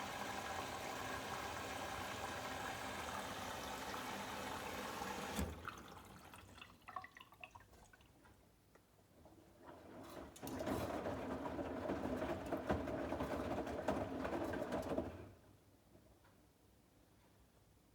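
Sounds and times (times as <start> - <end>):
washing machine water inflow: 0.0 - 8.2, 9.6 - 15.2
water dripping and trickling: 5.6 - 8.2.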